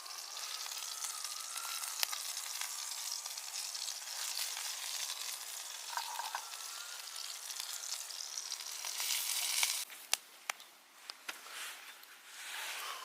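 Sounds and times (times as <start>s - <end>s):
meat sizzling: 0.0s - 9.9s.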